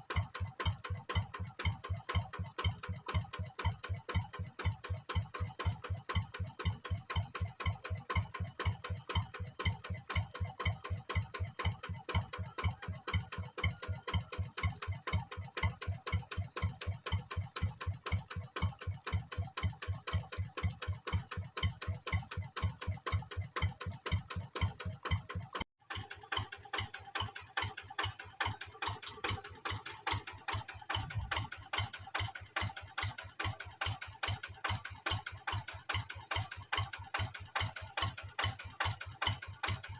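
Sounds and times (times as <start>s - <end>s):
diesel engine chugging: 0.4s - 39.9s.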